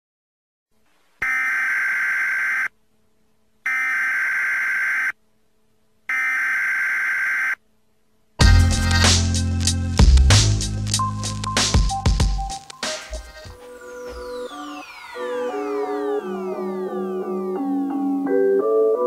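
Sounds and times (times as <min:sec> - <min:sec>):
electronic data warble tones: 0:12.6 - 0:18.6.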